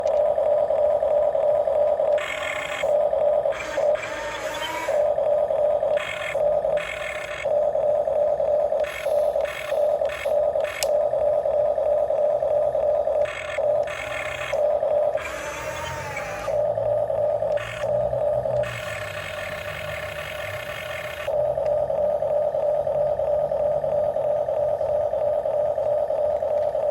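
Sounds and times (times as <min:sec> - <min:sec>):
electric gear motors whining: 0:00.0 - 0:26.9
sharp click: 0:08.8 - 0:11.0.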